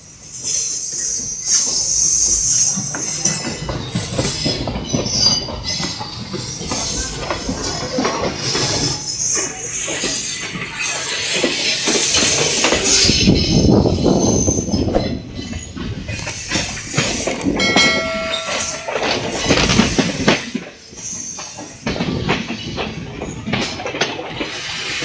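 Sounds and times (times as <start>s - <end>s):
train wheels rumbling on rail: 0.0s - 25.0s
short high tone: 17.6s - 19.4s.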